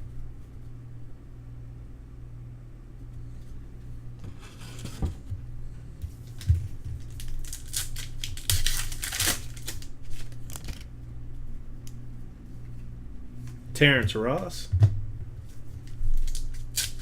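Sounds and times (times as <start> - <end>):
foil wrapper tearing and crinkling: 6.4 - 10.9, 15.8 - 17.0.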